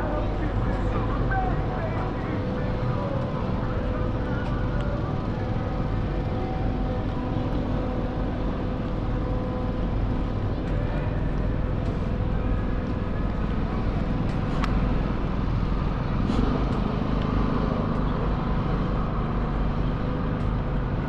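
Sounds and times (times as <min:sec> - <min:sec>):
faint engine hum: 0:00.0 - 0:21.0
traffic rumble: 0:00.0 - 0:21.0.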